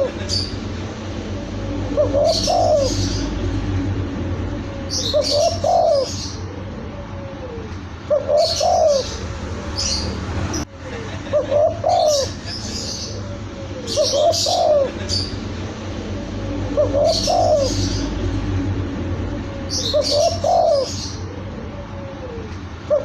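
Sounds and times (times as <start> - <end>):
dove cooing: 1.2 - 10.2, 11.3 - 23.0.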